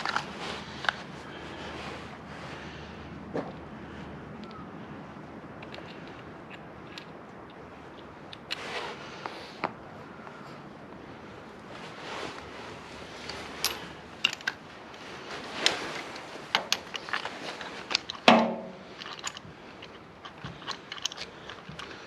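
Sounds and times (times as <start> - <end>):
metal parts clicking and clinking: 0.0 - 1.1, 5.6 - 8.6, 13.2 - 14.7, 15.5 - 22.0
ringing metal clank: 18.3 - 18.8.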